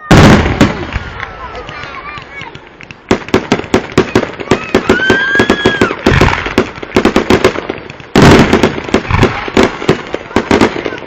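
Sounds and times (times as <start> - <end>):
fireworks bangs and crackling: 0.0 - 11.0
firework whistling: 3.1 - 11.0.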